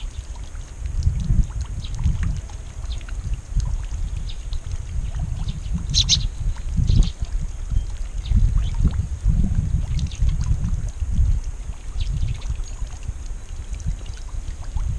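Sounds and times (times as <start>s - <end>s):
wind rumbling on microphone: 0.0s - 14.9s
high bird chirps: 5.5s - 7.9s.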